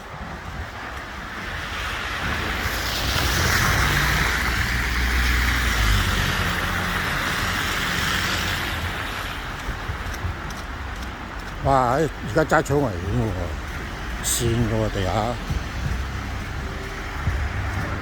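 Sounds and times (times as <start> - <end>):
car passing on wet road: 0.0 - 18.0.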